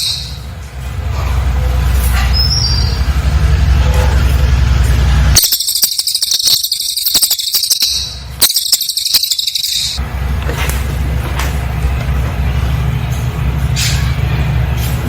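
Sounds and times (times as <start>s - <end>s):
bird singing rapid high trill: 0.0s - 0.5s, 5.4s - 10.0s.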